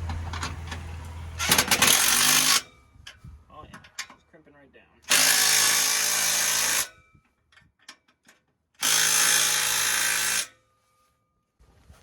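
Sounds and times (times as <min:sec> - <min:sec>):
power tool driving a nut: 0:01.4 - 0:02.6, 0:05.1 - 0:06.9, 0:08.8 - 0:10.5.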